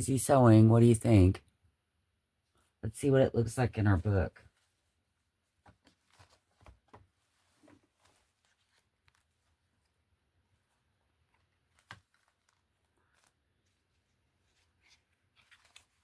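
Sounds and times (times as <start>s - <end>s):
paper rustling and tapping: 5.6s - 9.4s, 11.3s - 13.4s.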